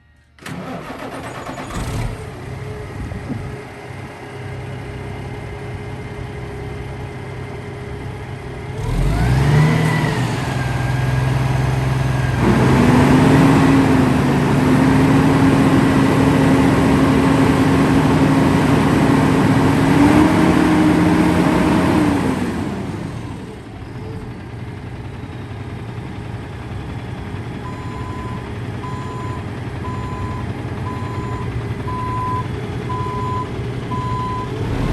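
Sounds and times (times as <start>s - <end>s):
truck diesel engine idling and revving: 0.4s - 34.9s
faint reversing beeps: 27.7s - 34.6s.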